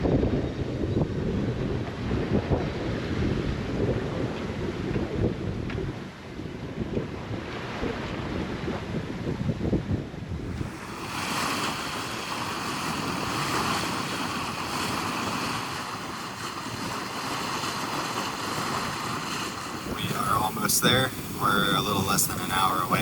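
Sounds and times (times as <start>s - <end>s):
wind buffeting microphone: 0.0s - 23.0s
water hissing along hull: 10.4s - 23.0s.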